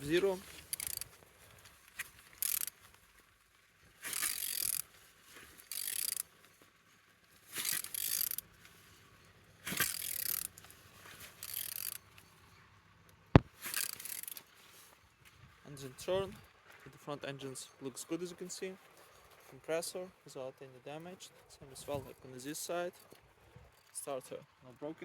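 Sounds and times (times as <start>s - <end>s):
ratchet wrench clicking: 0.5s - 1.1s, 2.3s - 2.8s, 4.1s - 4.8s, 5.6s - 6.2s, 7.6s - 8.4s, 9.7s - 10.6s, 11.4s - 12.0s, 13.6s - 14.4s.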